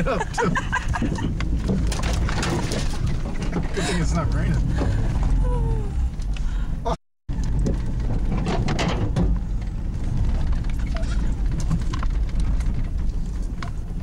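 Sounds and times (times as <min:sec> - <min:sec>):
engine and drivetrain rumble: 0:00.0 - 0:14.0
knocks and scrapes: 0:00.3 - 0:05.4, 0:07.3 - 0:14.0.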